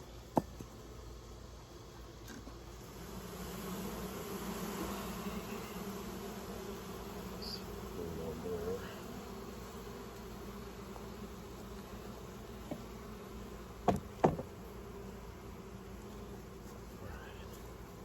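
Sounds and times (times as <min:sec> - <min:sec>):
bees buzzing: 0:00.0 - 0:18.0
sharp knocks: 0:13.8 - 0:14.5.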